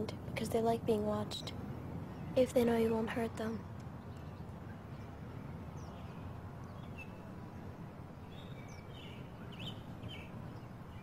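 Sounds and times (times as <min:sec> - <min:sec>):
low outdoor rumble: 0:00.0 - 0:11.0
bird chirps: 0:08.2 - 0:11.0.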